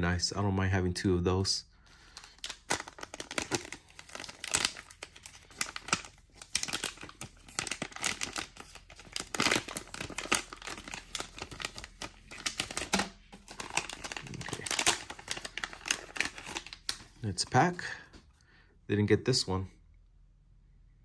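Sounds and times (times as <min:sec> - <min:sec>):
wrapper crinkling and tearing: 0:01.9 - 0:17.9.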